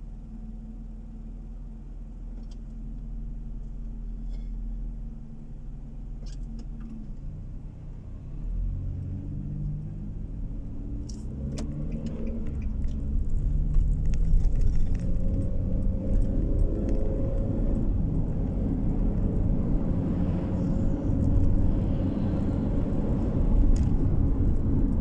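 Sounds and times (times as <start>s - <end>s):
road noise inside car: 0.0s - 25.0s
car engine accelerating: 5.8s - 25.0s.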